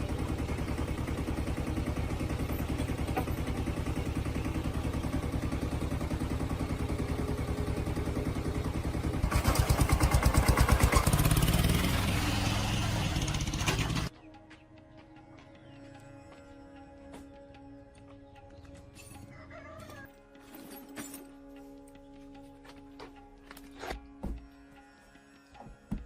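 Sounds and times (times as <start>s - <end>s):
diesel truck engine revving: 0.0s - 14.1s.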